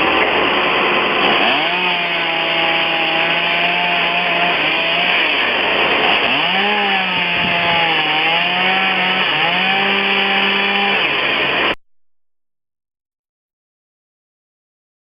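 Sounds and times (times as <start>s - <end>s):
chainsaw cutting wood: 0.0s - 11.8s.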